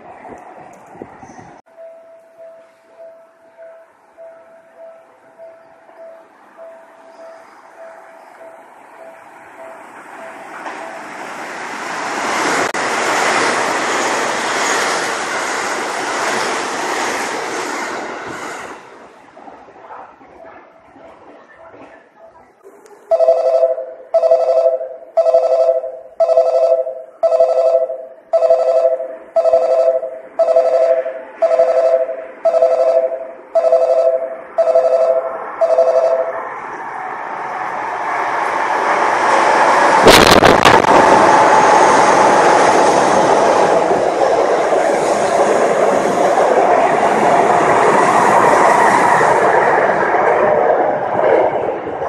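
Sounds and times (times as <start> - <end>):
train running along platform: 0.0 - 52.0
two-tone platform bell ringing: 1.7 - 11.0, 23.1 - 36.4.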